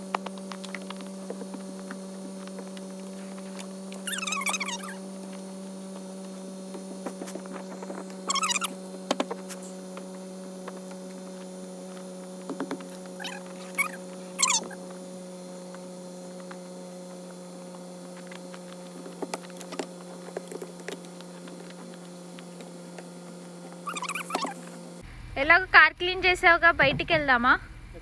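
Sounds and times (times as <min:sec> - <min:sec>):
short high squeaks: 0:03.9 - 0:05.1, 0:07.6 - 0:09.8, 0:12.9 - 0:14.8, 0:23.8 - 0:24.6.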